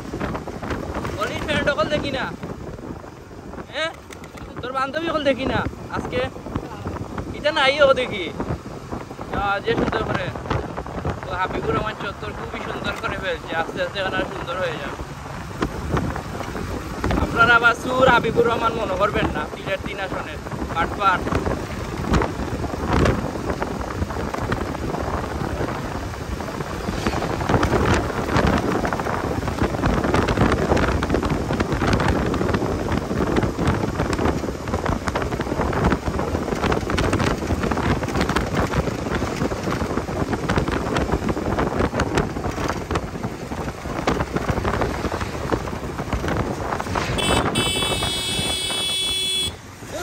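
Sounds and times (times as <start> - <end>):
motorcycle engine and road noise: 0.0 - 50.0
wind buffeting microphone: 0.0 - 50.0
vehicle horn: 47.1 - 49.7.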